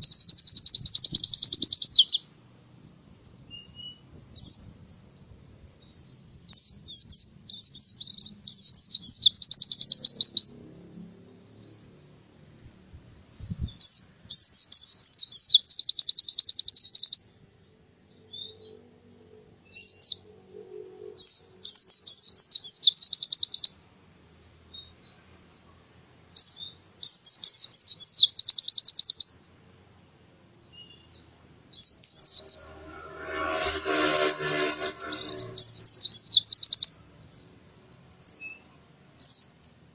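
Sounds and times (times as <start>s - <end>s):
bird singing fast trilling phrases: 0.0s - 2.5s, 3.5s - 10.6s, 13.4s - 17.3s, 19.7s - 20.2s, 21.2s - 23.8s, 26.4s - 29.4s, 30.8s - 32.7s
low coarse rattling: 32.0s - 36.2s.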